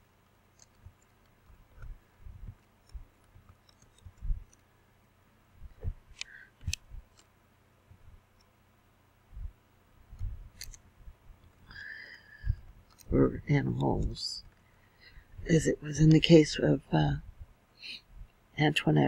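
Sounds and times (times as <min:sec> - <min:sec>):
computer mouse clicks: 0:00.2 - 0:04.7, 0:06.1 - 0:07.3, 0:10.1 - 0:10.8, 0:12.8 - 0:13.1.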